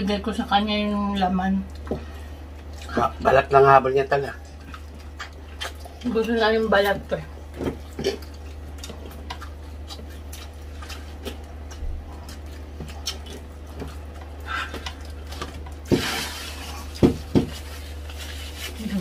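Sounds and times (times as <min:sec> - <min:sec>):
chewing and lip smacks: 0:01.6 - 0:03.3, 0:04.3 - 0:18.5
paper napkin rustling: 0:15.9 - 0:19.0.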